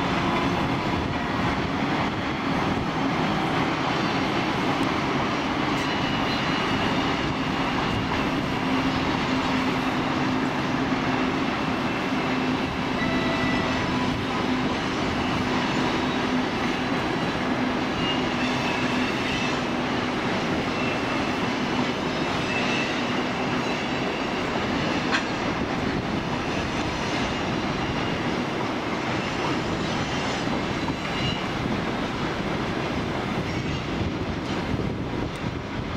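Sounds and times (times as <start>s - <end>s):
railway wagons rolling on track: 0.0s - 35.9s
wheel squeal: 5.7s - 10.1s, 17.9s - 19.7s, 20.6s - 25.4s, 26.3s - 28.4s, 29.1s - 31.5s.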